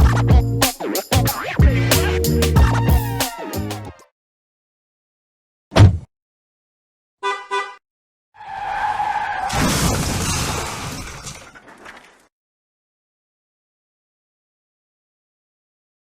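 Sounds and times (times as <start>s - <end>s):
sharp thud: 5.7s - 6.1s
skidding screech: 8.4s - 10.0s.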